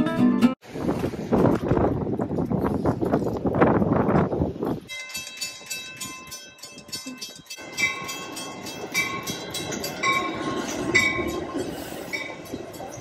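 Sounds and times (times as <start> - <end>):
train rumbling into station: 0.6 - 13.0
bell dinging: 4.9 - 13.0.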